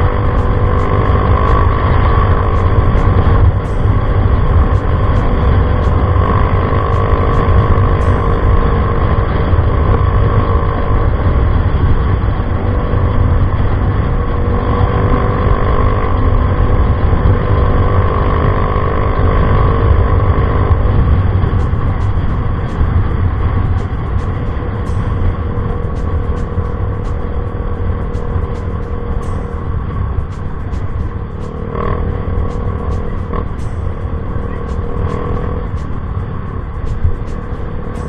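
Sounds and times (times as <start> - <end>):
scooter engine running: 0.0 - 38.0.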